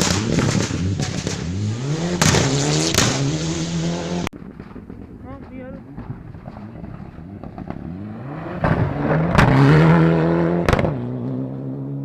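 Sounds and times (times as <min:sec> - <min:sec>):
sharp cracks: 0:00.0 - 0:03.6, 0:04.2 - 0:09.6
rally car engine passing: 0:00.0 - 0:04.3, 0:06.0 - 0:12.0.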